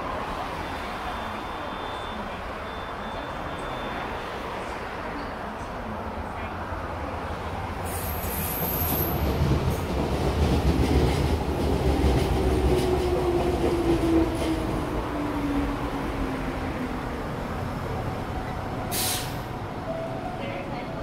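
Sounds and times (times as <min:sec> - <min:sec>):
train wheels rumbling and clattering: 0:07.9 - 0:15.9.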